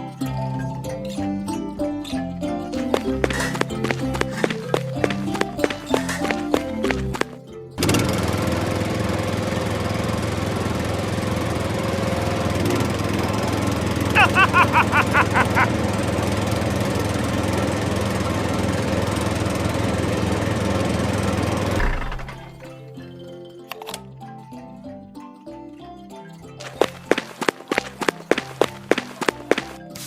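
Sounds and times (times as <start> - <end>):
small engine running: 2.3 - 22.6, 26.6 - 30.0.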